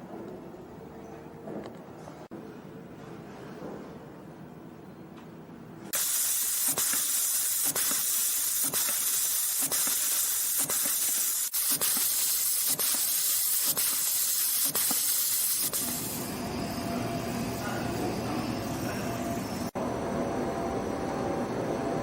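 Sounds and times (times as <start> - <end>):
machine hissing: 6.0 - 19.8.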